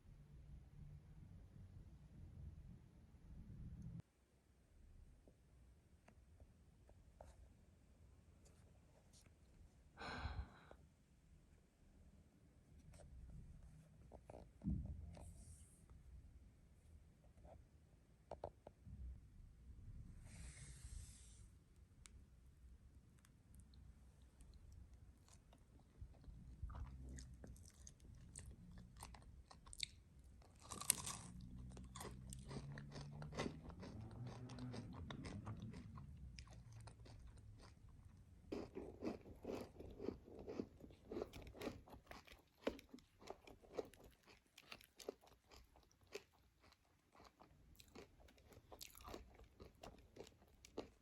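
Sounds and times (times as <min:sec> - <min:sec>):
chewing with crunches: 0:24.3 - 0:51.0.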